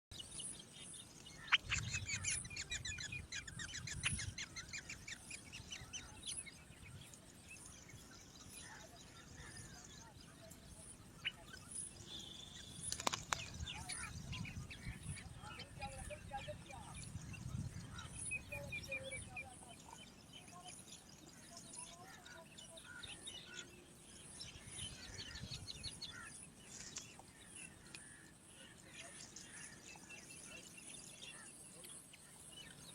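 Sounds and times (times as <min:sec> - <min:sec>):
small birds chirping: 0:00.1 - 0:32.9
sharp clicks: 0:12.8 - 0:13.6.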